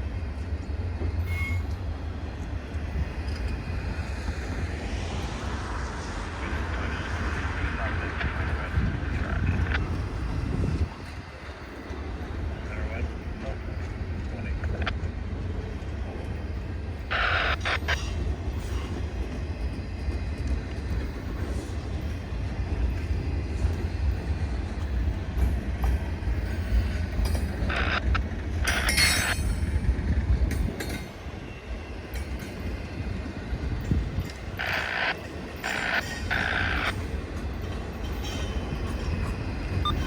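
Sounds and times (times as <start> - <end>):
freight train rumbling on rails: 0.0 - 40.0
train wheels squealing: 0.4 - 2.1, 16.4 - 30.0, 30.7 - 40.0.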